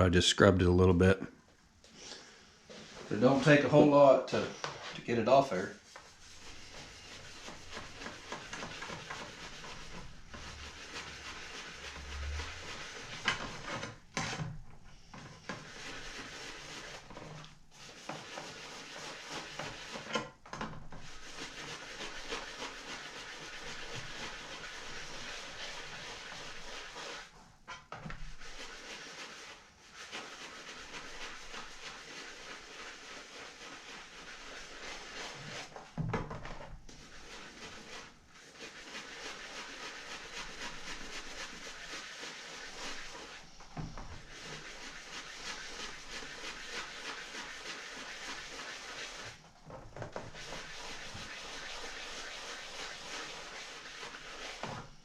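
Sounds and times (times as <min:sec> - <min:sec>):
water spraying over saw blade: 0:37.0 - 0:43.5, 0:44.2 - 0:49.4, 0:50.2 - 0:54.6.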